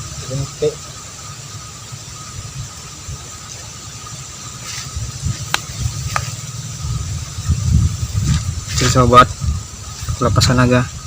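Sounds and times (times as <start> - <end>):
faint high whines: 0.0 - 11.0
wind on microphone: 4.6 - 11.0.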